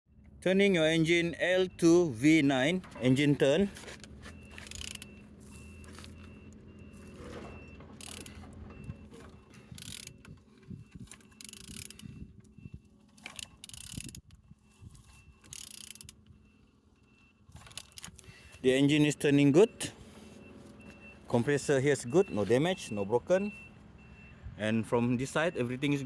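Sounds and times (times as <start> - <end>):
engine turned over by hand: 2.6 - 16.4, 17.5 - 18.8
irregular mechanical clicks: 4.0 - 5.2, 8.0 - 8.4, 9.7 - 14.4, 15.4 - 16.4, 17.6 - 18.3.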